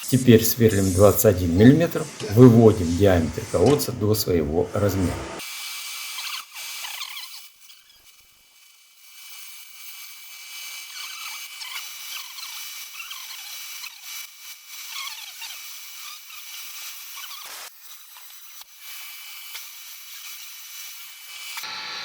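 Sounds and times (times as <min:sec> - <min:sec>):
drill machining metal: 0:00.0 - 0:06.2, 0:20.9 - 0:22.0.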